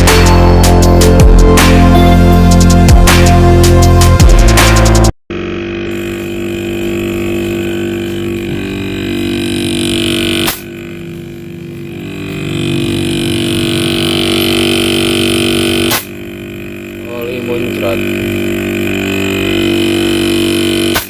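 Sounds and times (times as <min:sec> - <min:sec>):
angle grinder cutting steel: 0:05.3 - 0:21.0.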